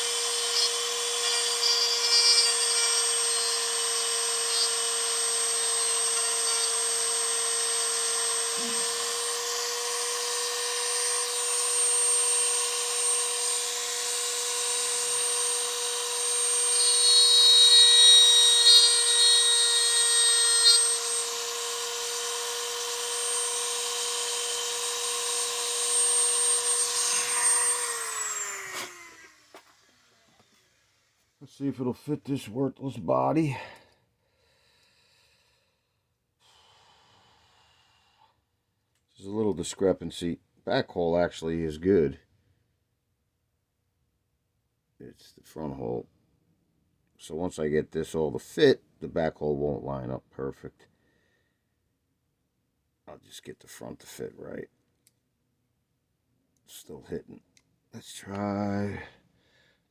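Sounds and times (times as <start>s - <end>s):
rotary grinding tool whining: 0.0s - 30.6s.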